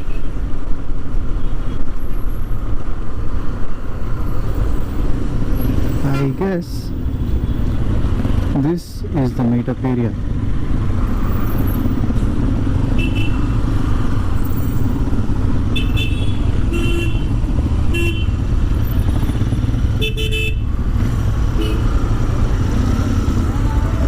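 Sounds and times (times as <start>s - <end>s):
vehicle horn honks: 15.8s - 17.3s, 17.9s - 18.3s, 20.0s - 20.6s.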